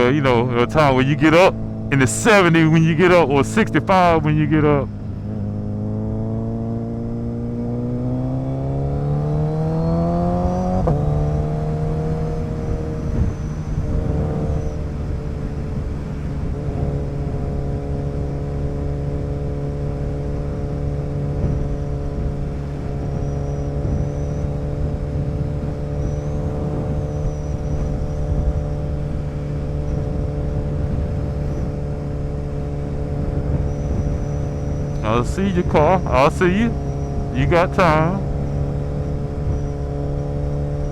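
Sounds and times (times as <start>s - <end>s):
motorcycle engine cruising: 4.8s - 35.0s.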